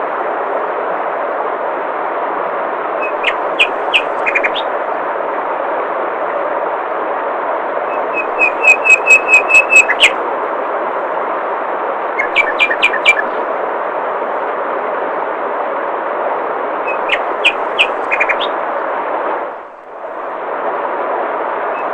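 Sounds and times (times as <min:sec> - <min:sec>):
songbird chirping: 0:03.0 - 0:04.7, 0:07.9 - 0:10.2, 0:12.2 - 0:13.4, 0:16.9 - 0:18.6.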